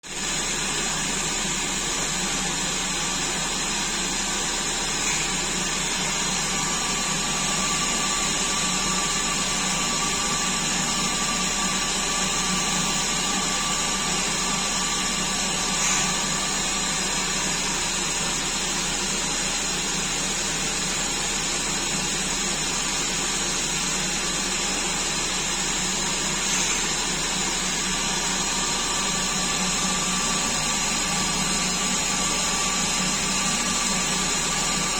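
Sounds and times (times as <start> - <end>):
lathe whirring with high whine: 0.0 - 34.9.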